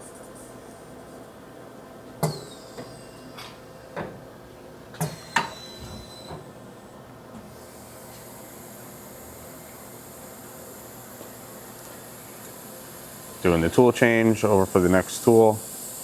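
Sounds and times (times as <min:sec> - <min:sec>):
machine hum: 0:06.6 - 0:16.0.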